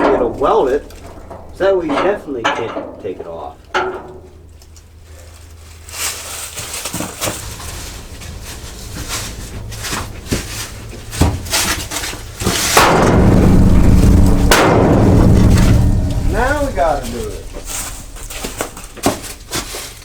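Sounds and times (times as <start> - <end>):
tools clanking on metal: 0.0 - 5.6.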